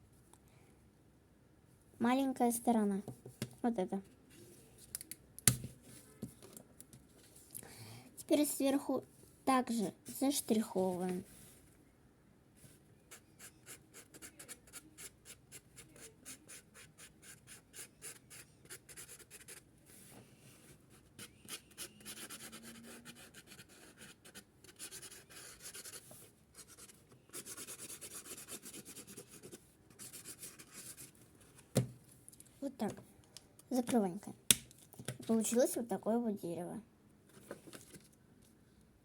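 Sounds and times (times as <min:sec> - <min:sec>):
marker scratching on paper: 0:13.1 - 0:19.6, 0:21.2 - 0:31.1.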